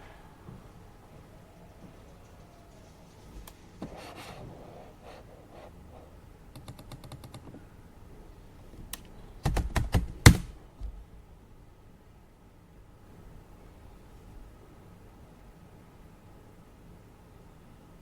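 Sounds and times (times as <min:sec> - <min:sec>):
keyboard typing: 0:06.5 - 0:07.6, 0:09.4 - 0:10.4.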